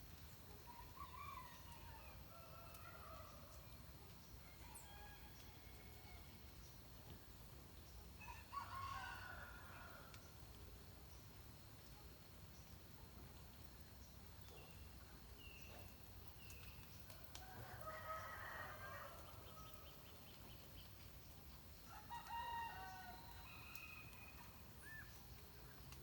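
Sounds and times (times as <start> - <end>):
rooster crowing: 17.6 - 19.3.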